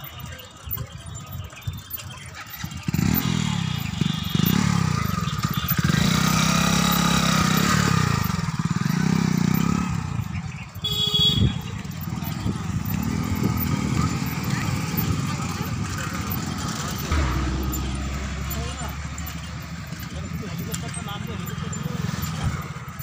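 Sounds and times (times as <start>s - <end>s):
motorcycle engine revving: 0.0s - 23.0s
short high ring: 17.0s - 19.8s.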